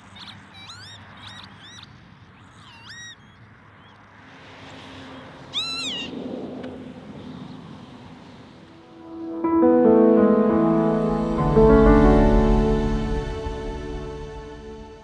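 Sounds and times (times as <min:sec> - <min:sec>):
lapwings calling: 0:05.5 - 0:06.1.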